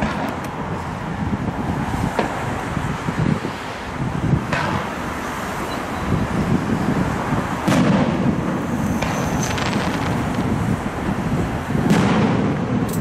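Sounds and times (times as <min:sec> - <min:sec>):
low traffic rumble: 0:00.0 - 0:13.0
firework crackles: 0:07.5 - 0:13.0
firework shells bursting: 0:07.7 - 0:10.7.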